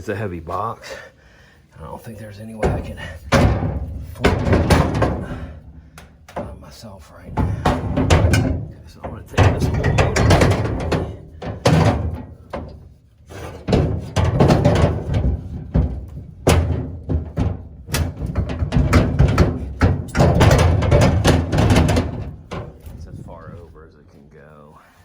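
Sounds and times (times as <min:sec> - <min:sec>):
heavy gear clunking and rattling: 0:02.6 - 0:23.9.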